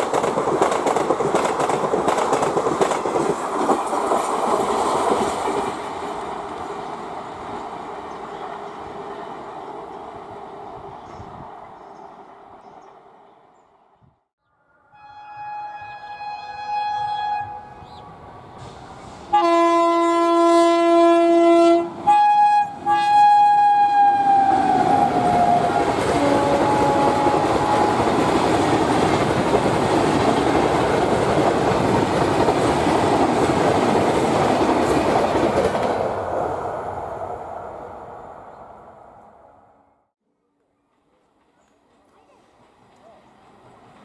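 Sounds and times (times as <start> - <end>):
train rushing by: 0.0 - 13.5, 17.0 - 20.8, 21.4 - 39.8, 41.5 - 44.0
locomotive horn blasts: 14.7 - 18.2, 19.3 - 28.2.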